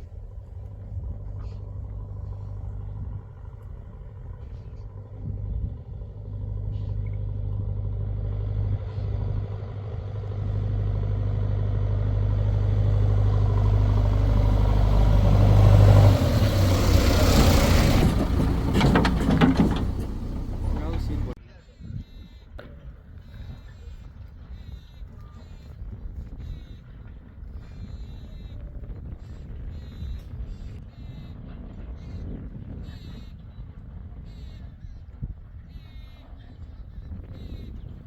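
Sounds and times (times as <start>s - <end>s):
diesel engine droning: 0.0s - 21.4s.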